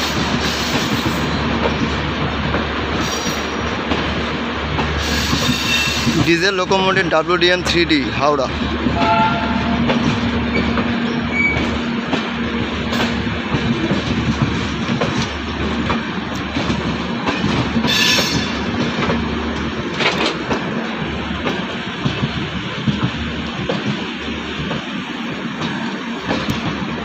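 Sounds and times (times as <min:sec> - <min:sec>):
train coaches rumbling past: 0:00.0 - 0:27.0
wheels clicking over rail joints: 0:09.8 - 0:26.9.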